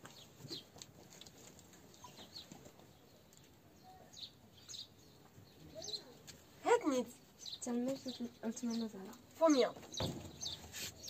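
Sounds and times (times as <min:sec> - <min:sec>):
faint bird chirps: 0:03.7 - 0:06.2.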